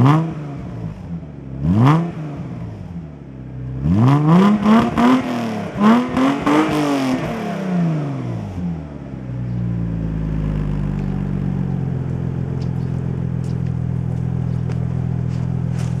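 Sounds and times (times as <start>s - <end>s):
car engine revving and idling: 0.0s - 16.0s.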